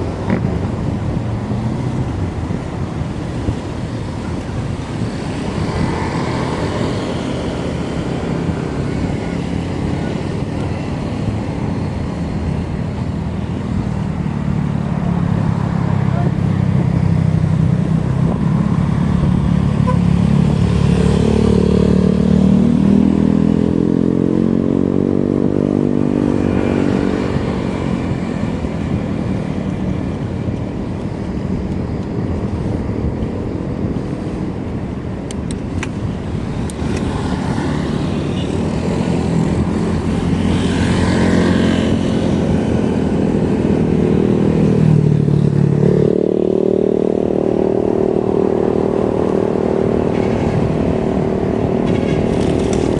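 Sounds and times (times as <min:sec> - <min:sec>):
road and wind rumble: 0:00.0 - 0:52.9
vehicle engine running: 0:50.1 - 0:52.9.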